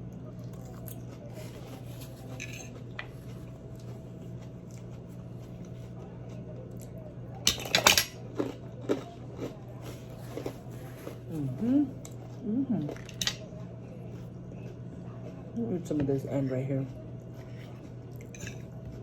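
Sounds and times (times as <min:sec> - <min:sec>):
chewing with small clicks: 0:00.0 - 0:01.4, 0:02.7 - 0:07.4, 0:08.2 - 0:11.2, 0:16.8 - 0:19.0
low electrical hum: 0:00.0 - 0:19.0
utensils clattering on plate: 0:01.8 - 0:03.2, 0:07.5 - 0:08.2.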